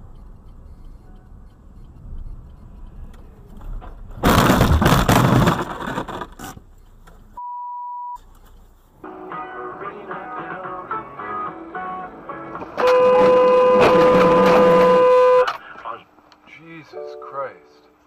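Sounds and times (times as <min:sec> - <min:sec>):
car road rumble: 0:00.0 - 0:07.4, 0:08.2 - 0:16.4
vehicle collision impact: 0:03.7 - 0:06.6, 0:12.4 - 0:15.6
censor bleep: 0:07.4 - 0:08.2.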